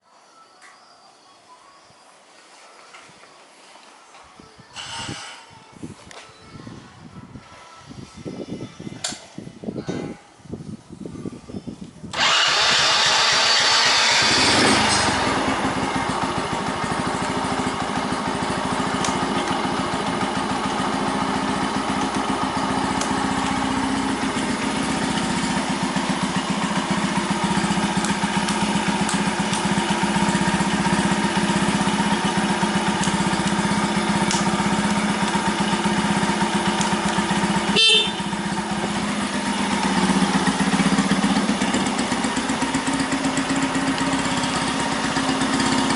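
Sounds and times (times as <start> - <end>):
click: 9.0 - 9.2, 19.0 - 19.6, 34.3 - 34.5, 36.8 - 37.2
motorcycle engine starting and idling: 12.1 - 45.9.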